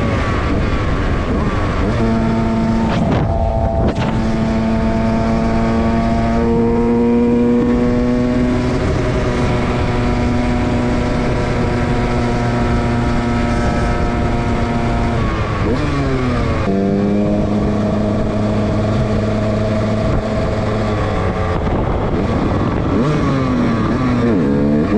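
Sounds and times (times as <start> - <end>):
dirt bike engine at high rev: 0.0 - 24.9.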